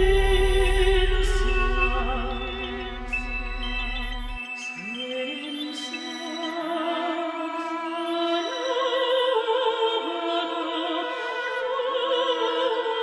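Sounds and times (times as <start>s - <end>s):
sustained accompaniment: 0.0s - 5.4s
soprano singing operatically: 0.0s - 13.0s.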